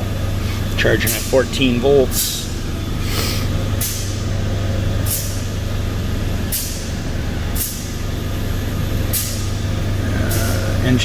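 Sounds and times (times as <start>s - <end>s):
car engine idling: 0.0s - 11.0s
short hisses: 3.0s - 3.6s.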